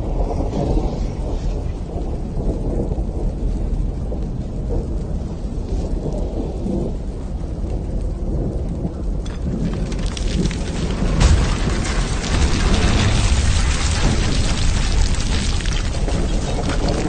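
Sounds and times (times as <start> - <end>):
deep volcanic rumble: 0.0 - 17.0
patter of many small hits: 0.1 - 17.0
sharp crack: 9.2 - 17.0.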